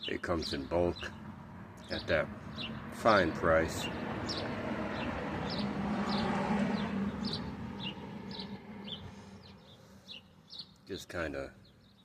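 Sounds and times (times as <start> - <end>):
small bird chirping: 3.8 - 11.0.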